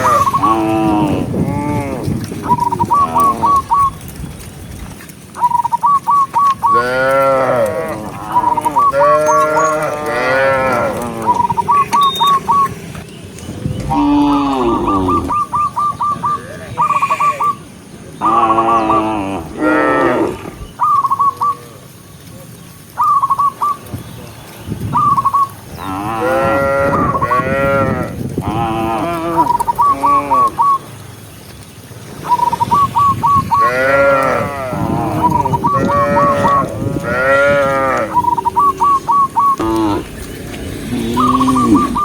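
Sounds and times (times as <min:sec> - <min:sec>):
cattle mooing: 0:00.0 - 0:03.7, 0:06.7 - 0:12.7, 0:13.5 - 0:15.4, 0:18.2 - 0:20.6, 0:25.9 - 0:30.6, 0:33.6 - 0:42.0
high repeated chirping: 0:11.4 - 0:12.8.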